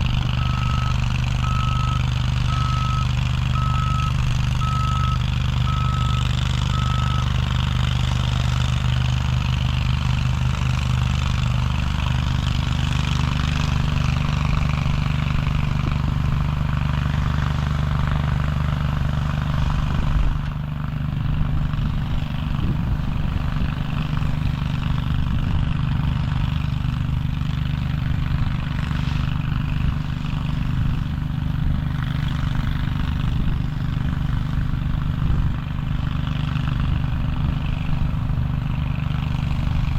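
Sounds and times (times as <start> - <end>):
heavy vehicle engine humming: 0.0 - 39.9
reversing beeper: 0.3 - 7.4.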